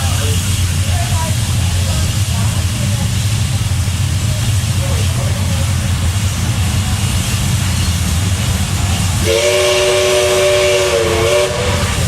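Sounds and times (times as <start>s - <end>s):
train carriage rumble: 0.0s - 12.0s
steam locomotive whistle: 9.2s - 12.0s.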